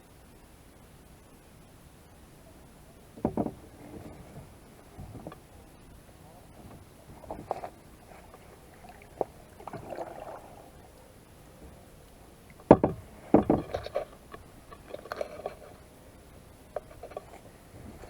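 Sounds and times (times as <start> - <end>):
sharp knocks: 3.2 - 3.7, 12.7 - 13.9
paddle splashing in water: 6.2 - 11.0, 11.6 - 18.0.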